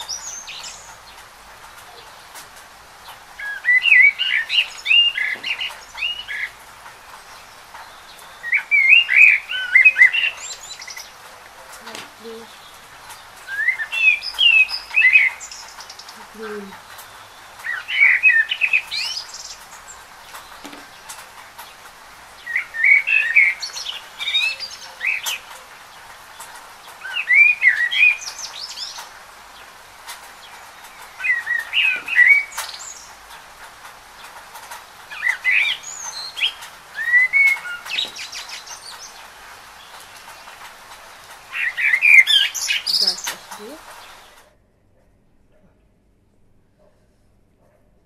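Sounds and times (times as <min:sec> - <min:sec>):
steady hiss: 0:00.0 - 0:44.6
bird twittering: 0:41.5 - 0:44.4.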